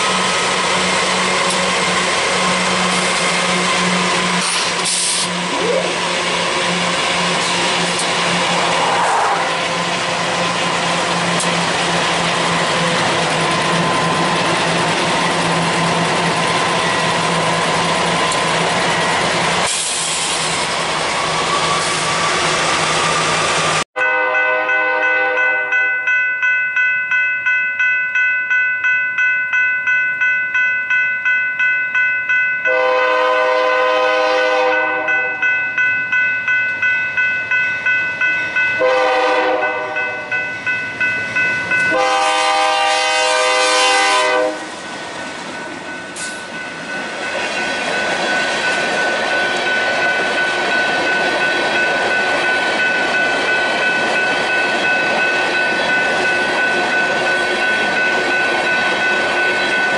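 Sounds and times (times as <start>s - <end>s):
freight cars rumbling on rails: 0.0s - 23.8s, 33.5s - 59.9s
locomotive engines running: 0.0s - 23.8s
train horn blasts: 24.0s - 25.7s, 32.7s - 35.4s, 38.8s - 40.2s, 41.9s - 44.8s
crossing bell ringing: 24.0s - 59.9s.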